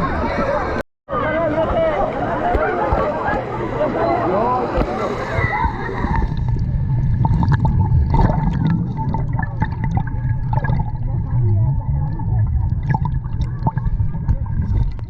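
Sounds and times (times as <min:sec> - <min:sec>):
water sloshing and gurgling: 0:04.7 - 0:15.0
low rumble: 0:06.0 - 0:15.0.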